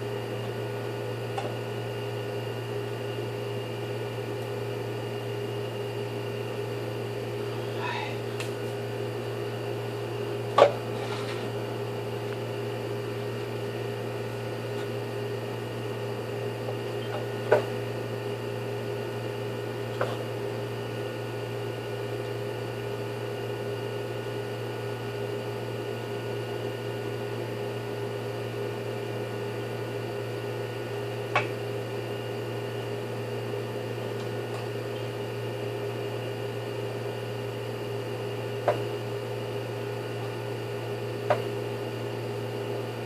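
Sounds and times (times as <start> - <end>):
electrical hum: 0.0 - 43.0.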